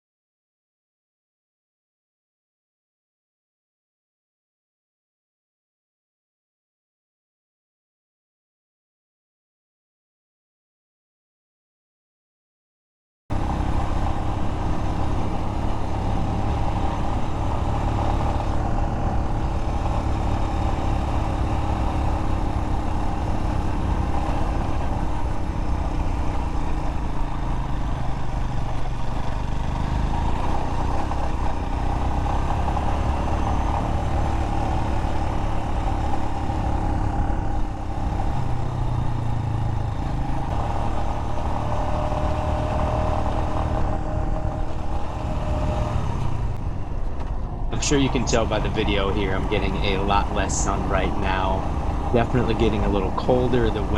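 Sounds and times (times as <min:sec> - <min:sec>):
motorcycle engine running: 0:13.3 - 0:53.9
wind and road noise: 0:13.3 - 0:53.9.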